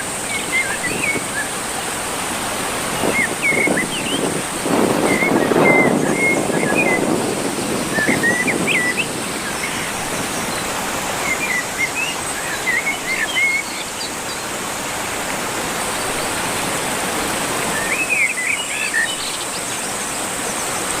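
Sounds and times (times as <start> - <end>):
river water rushing: 0.0 - 21.0
bird chirping: 7.7 - 14.4.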